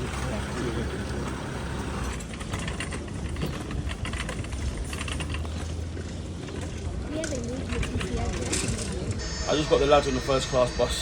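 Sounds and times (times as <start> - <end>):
light rattles and clicks: 2.0 - 9.2.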